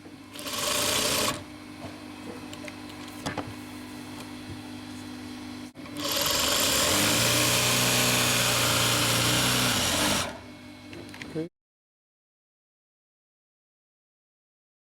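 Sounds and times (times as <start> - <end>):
industrial sewing machine running: 0.3 - 1.5, 5.8 - 10.4
motor humming: 5.8 - 10.6.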